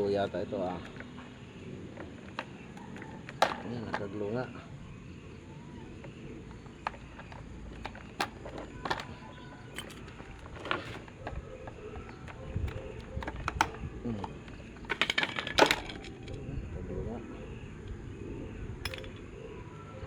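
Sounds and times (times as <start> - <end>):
clicks and knocks of fan parts: 0.3 - 4.4, 5.8 - 16.4, 18.8 - 19.3.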